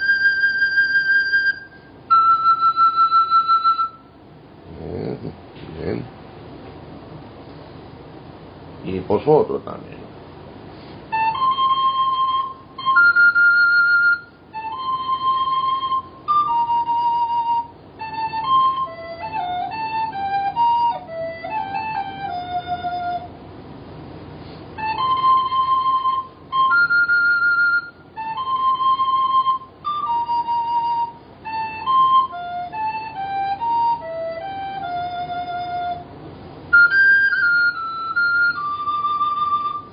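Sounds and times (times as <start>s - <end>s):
recorder playing carol melody: 0.0s - 4.1s, 11.1s - 23.4s, 24.8s - 39.9s.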